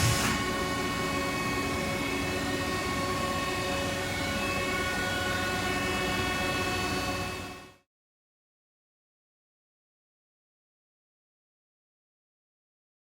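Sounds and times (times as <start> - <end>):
hiss: 0.0 - 0.5
milling machine whine: 0.0 - 7.8.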